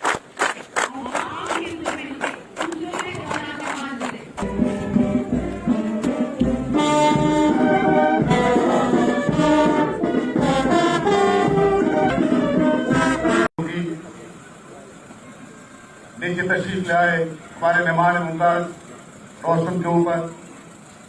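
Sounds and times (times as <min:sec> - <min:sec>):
brass band playing: 0:04.4 - 0:13.5.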